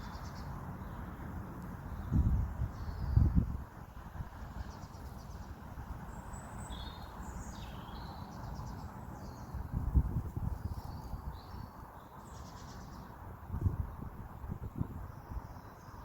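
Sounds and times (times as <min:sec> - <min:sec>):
small birds chirping: 0:00.0 - 0:03.4, 0:04.6 - 0:09.8, 0:10.4 - 0:13.2.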